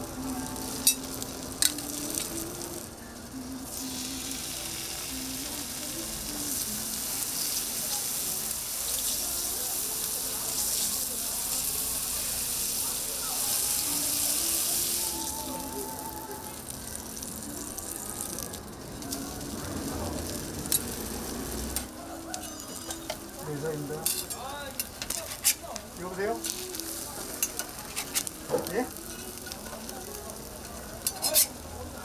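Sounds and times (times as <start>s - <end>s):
food sizzling on griddle: 0.0s - 32.0s
metal utensils clicking: 0.8s - 2.4s, 21.7s - 23.3s, 24.0s - 25.6s, 27.4s - 28.4s, 29.1s - 29.9s, 30.6s - 31.6s.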